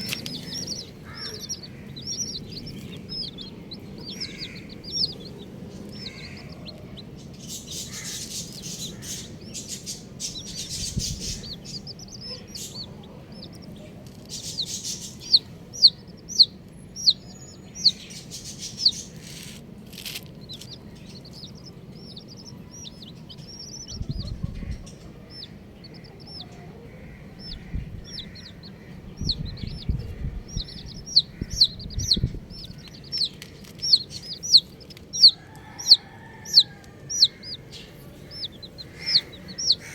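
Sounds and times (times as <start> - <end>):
baby chicks peeping: 0.0 - 39.9
rustling: 19.2 - 20.7
low thuds: 27.3 - 33.2.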